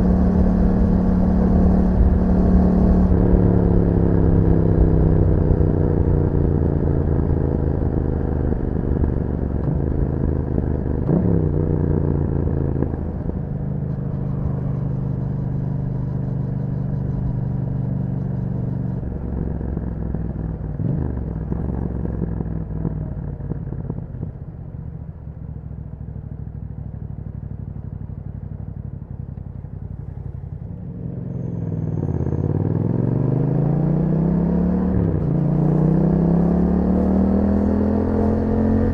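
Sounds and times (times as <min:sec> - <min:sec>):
motorcycle engine revving: 0:00.0 - 0:24.4, 0:29.8 - 0:38.9.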